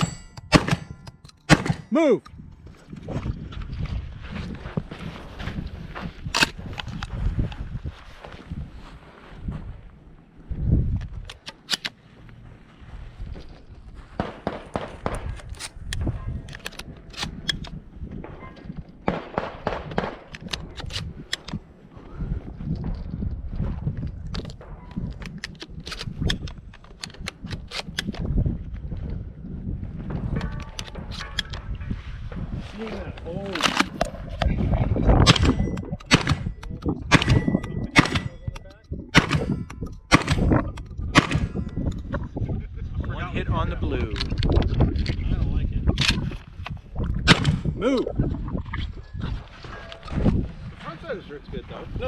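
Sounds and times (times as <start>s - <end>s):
bullets ringing on steel targets: 0.0s - 1.9s
gunshots cracking: 0.0s - 1.9s, 14.2s - 15.4s, 19.0s - 20.8s, 35.2s - 38.5s, 39.1s - 40.6s, 41.2s - 41.6s, 47.2s - 47.7s.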